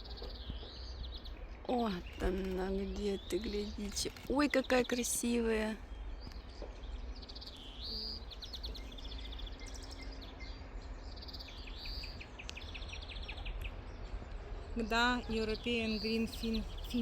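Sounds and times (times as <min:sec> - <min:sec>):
finch singing trills: 0:00.0 - 0:17.0.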